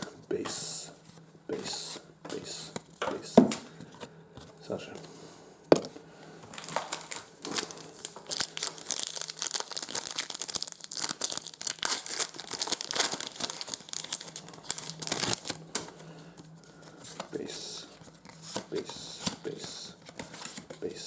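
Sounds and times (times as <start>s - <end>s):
card pack wrapper crinkling and tearing: 6.5s - 15.7s.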